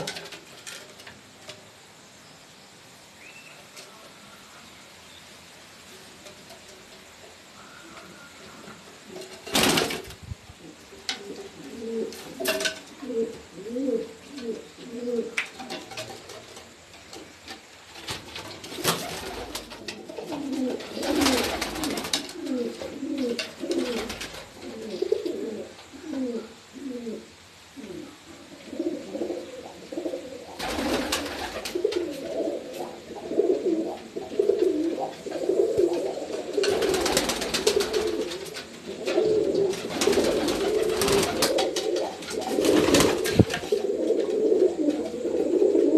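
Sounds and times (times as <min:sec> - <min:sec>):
pigeons cooing: 0:10.6 - 0:16.3, 0:18.6 - 0:45.9.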